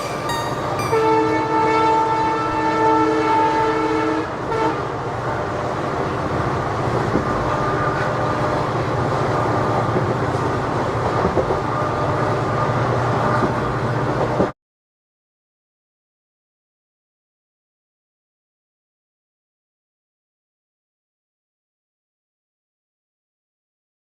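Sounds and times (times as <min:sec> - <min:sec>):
train horn: 0:00.0 - 0:05.1
train rumbling on track: 0:00.0 - 0:14.6.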